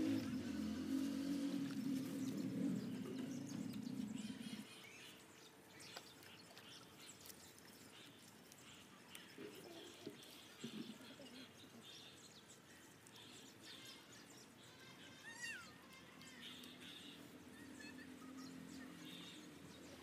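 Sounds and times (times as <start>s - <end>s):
low steady hum: 0.0s - 13.5s
birds chirping faintly: 0.0s - 20.0s.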